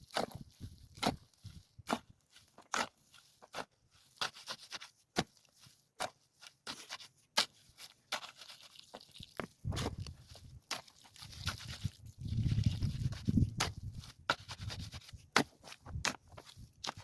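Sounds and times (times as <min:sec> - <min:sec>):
sharp knocks and scrapes: 0:09.6 - 0:10.8.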